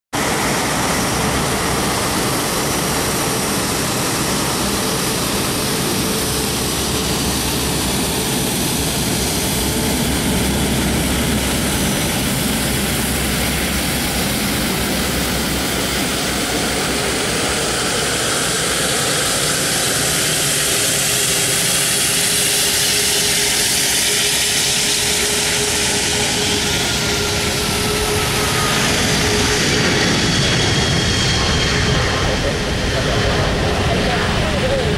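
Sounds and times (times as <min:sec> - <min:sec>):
jet engines roaring with whine: 0:00.1 - 0:34.9.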